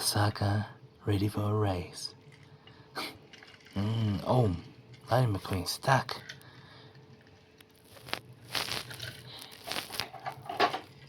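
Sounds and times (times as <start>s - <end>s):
plastic toy clicks and rustles: 7.6s - 11.0s.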